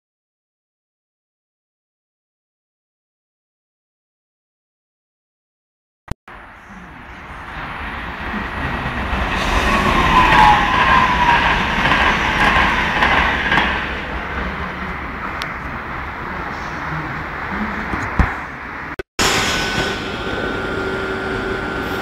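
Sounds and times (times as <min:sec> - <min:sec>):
train whine: 0:06.3 - 0:18.1, 0:19.2 - 0:22.0
passing train rumble: 0:06.3 - 0:22.0.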